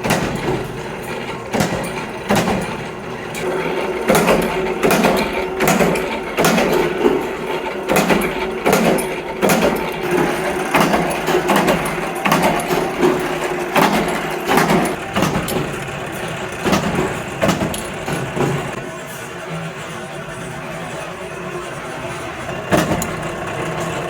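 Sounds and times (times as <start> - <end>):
metal impacts: 0.0 - 18.8
machine hum: 0.0 - 24.0.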